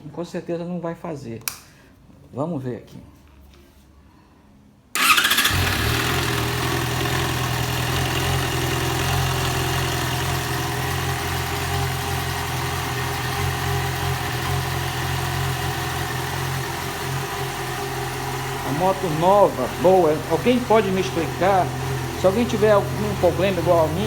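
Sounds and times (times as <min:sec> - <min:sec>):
motorcycle engine idling: 0:05.0 - 0:24.0
motorcycle starter whine: 0:05.0 - 0:24.0.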